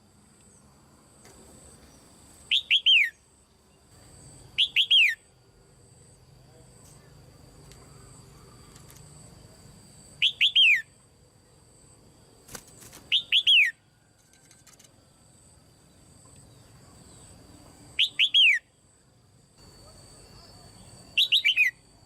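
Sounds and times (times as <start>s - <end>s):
bulbul calling: 4.6s - 5.2s, 10.2s - 10.9s, 13.1s - 13.8s, 18.0s - 18.7s, 21.2s - 21.8s.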